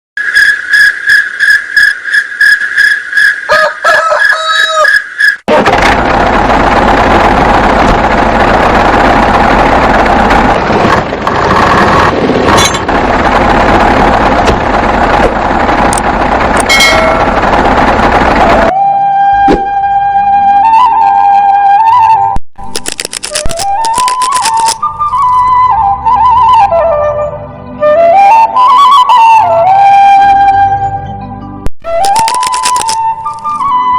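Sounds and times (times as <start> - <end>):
high pulsing beeps: 0.2 - 3.4
small engine clattering: 5.5 - 18.7.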